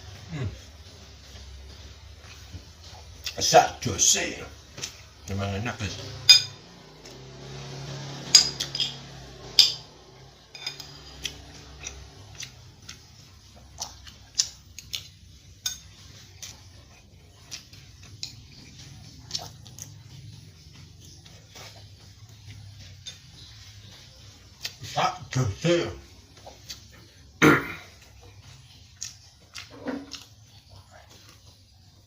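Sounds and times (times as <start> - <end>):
cutlery clinking on a plate: 6.2 - 6.6, 8.2 - 12.4, 15.0 - 16.0.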